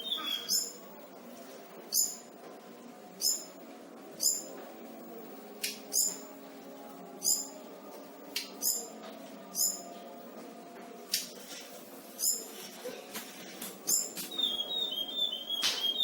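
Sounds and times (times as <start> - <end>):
songbird high chirps: 0.0 - 0.7, 14.3 - 16.0
low background hum: 0.0 - 16.0.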